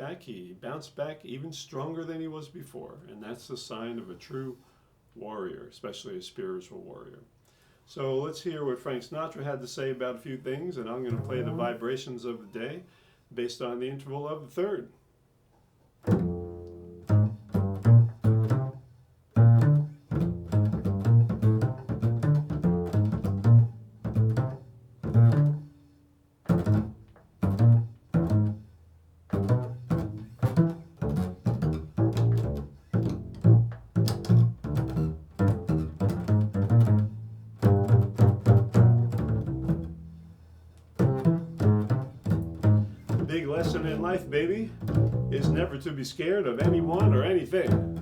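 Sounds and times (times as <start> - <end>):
plucked bass solo: 11.1 - 11.8, 16.1 - 18.8, 19.4 - 25.7, 26.5 - 28.7, 29.3 - 45.9, 46.6 - 48.0.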